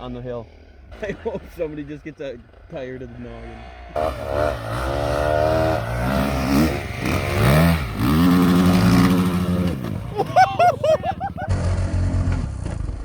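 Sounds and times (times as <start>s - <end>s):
dirt bike engine revving: 3.4s - 11.6s.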